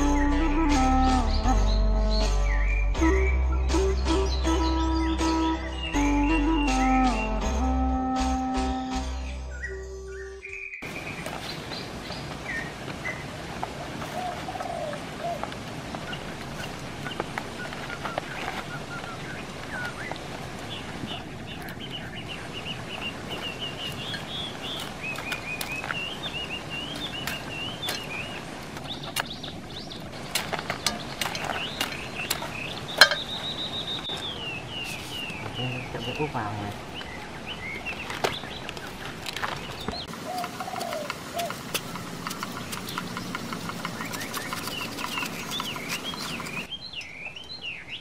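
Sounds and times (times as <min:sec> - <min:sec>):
birds chirping and calling: 0:09.2 - 0:48.0
sharp clicks: 0:39.8 - 0:46.7.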